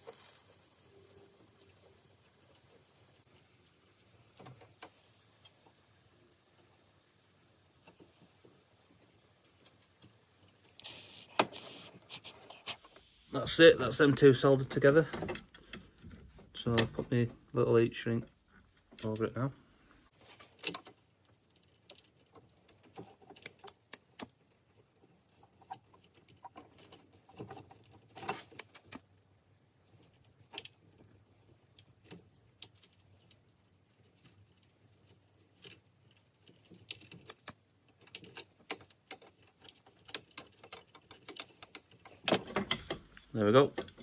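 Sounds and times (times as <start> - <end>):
hands working wires and tubing: 0.0 - 13.4, 14.0 - 44.0.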